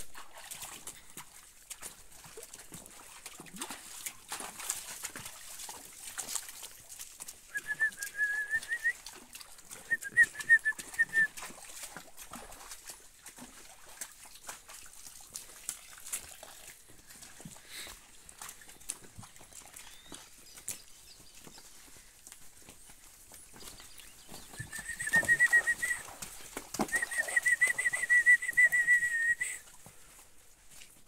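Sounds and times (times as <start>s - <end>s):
bird chirping: 19.8s - 21.7s.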